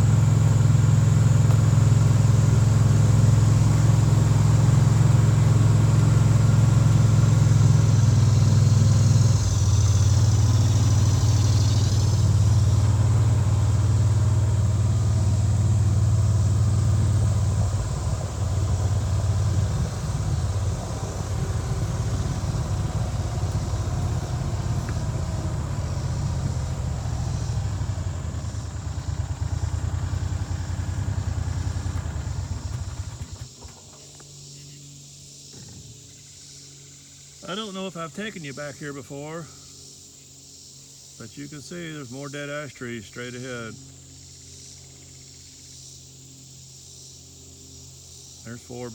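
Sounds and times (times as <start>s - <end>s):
engine shutting off: 0.0s - 48.9s
vehicle engine running: 0.0s - 48.9s.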